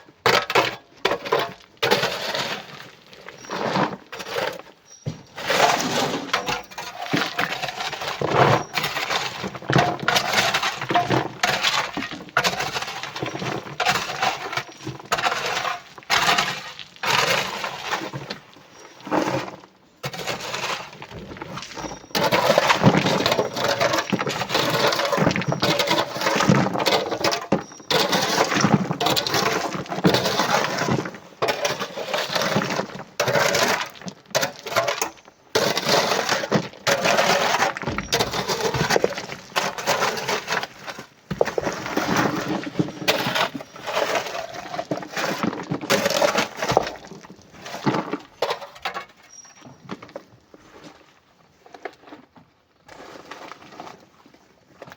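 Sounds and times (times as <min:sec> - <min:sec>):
rock and sand crashing into truck: 0:21.0 - 0:49.2.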